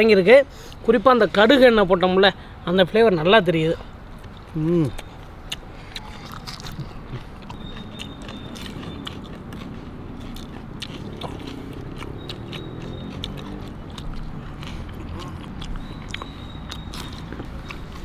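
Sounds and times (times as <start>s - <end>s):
people chewing food: 4.1s - 18.0s
mouth clicks: 4.2s - 18.0s.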